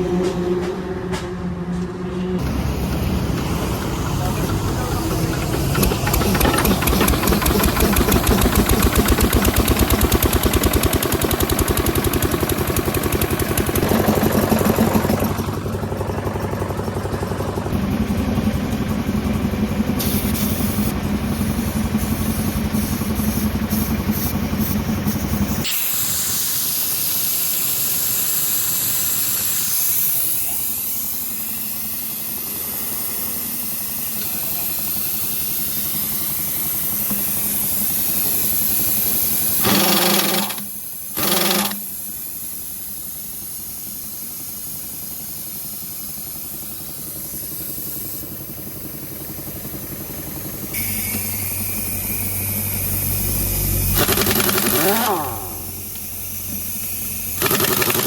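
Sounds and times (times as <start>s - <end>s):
heavy diesel engine running: 0.0s - 25.7s, 43.0s - 58.0s.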